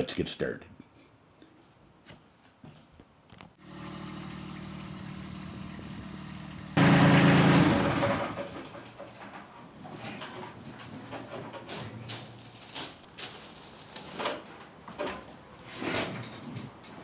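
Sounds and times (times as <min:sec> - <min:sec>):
tractor diesel engine running: 0:03.6 - 0:09.1.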